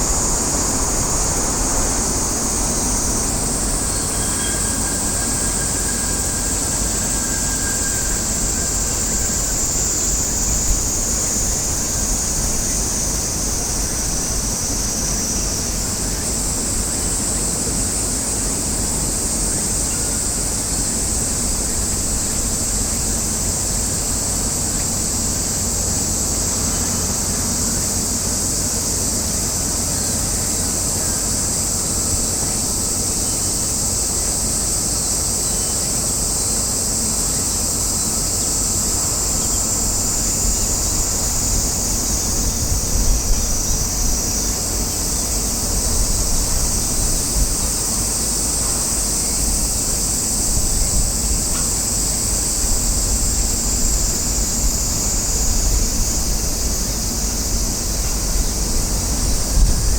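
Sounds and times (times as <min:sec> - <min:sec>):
high-pitched buzzing hiss: 0:00.0 - 0:59.9
wind buffeting microphone: 0:38.8 - 0:48.0, 0:52.3 - 0:59.9.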